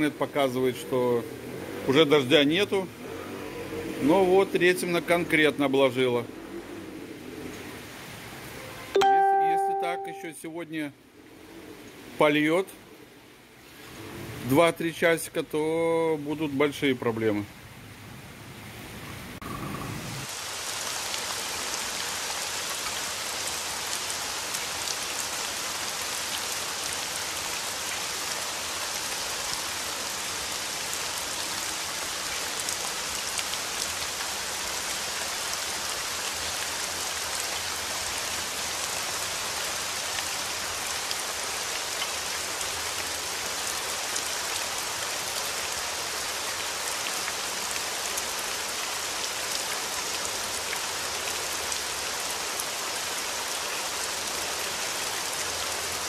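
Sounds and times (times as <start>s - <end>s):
heavy rain falling: 19.0s - 56.0s.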